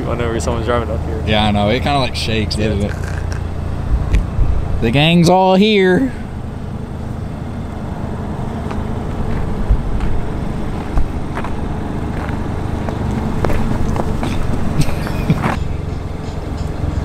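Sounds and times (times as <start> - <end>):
car engine running: 0.0 - 17.0
short low thumps: 2.8 - 4.8, 9.2 - 15.6.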